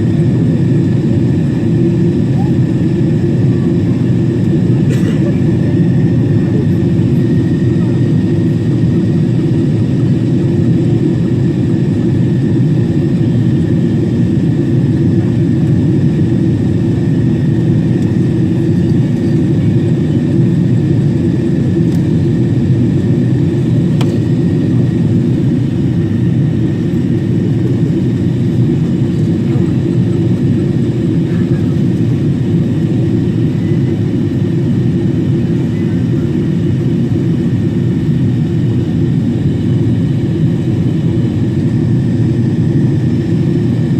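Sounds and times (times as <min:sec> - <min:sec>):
jet engines droning: 0:00.0 - 0:43.9.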